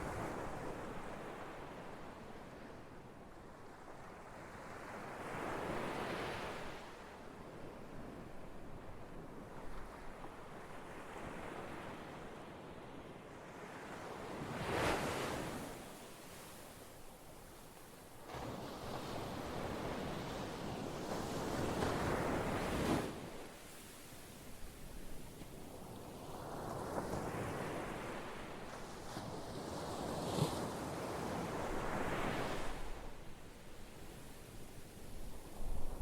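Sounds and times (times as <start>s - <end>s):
ocean waves breaking on shore: 9.9s - 16.9s, 17.8s - 36.0s.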